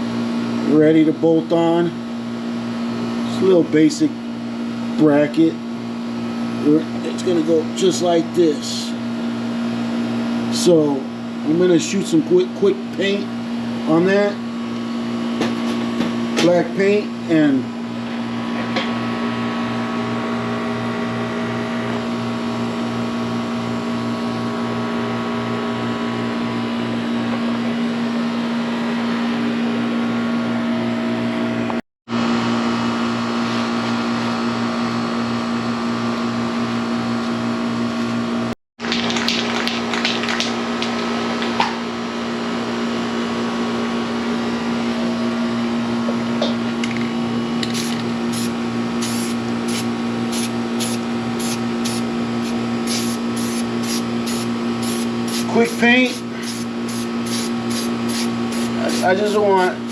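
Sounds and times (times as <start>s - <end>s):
paint sprayer motor humming: 47.6s - 59.9s
hissing bursts of spray: 47.7s - 59.0s.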